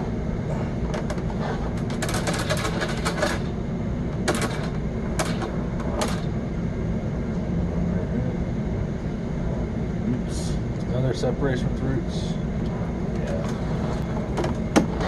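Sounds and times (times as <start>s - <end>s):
steady low rumble: 0.0s - 15.0s
cable reel clicking and rattling: 1.0s - 3.5s.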